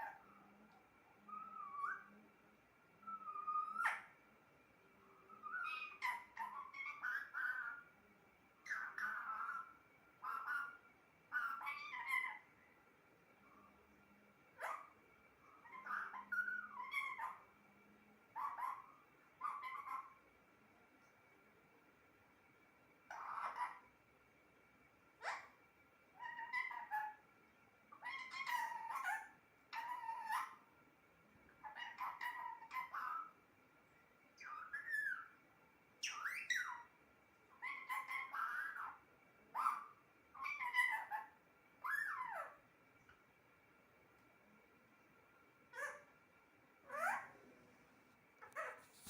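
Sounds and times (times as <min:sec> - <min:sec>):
parrot squawking: 0:01.3 - 0:02.1, 0:03.0 - 0:04.2, 0:05.3 - 0:07.9, 0:08.6 - 0:12.5, 0:14.6 - 0:14.9, 0:15.5 - 0:17.5, 0:18.4 - 0:20.2, 0:23.1 - 0:23.9, 0:25.2 - 0:25.6, 0:26.2 - 0:27.2, 0:27.9 - 0:30.7, 0:31.6 - 0:33.4, 0:34.4 - 0:35.4, 0:36.0 - 0:36.9, 0:37.5 - 0:42.6, 0:45.7 - 0:46.1, 0:46.8 - 0:47.4.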